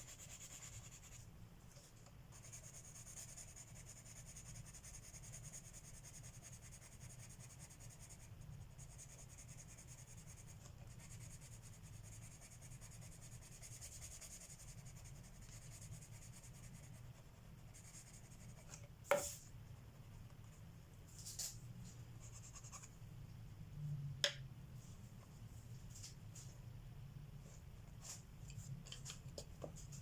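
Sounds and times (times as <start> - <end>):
pencil scratching on paper: 0.0 - 1.2, 2.3 - 19.3.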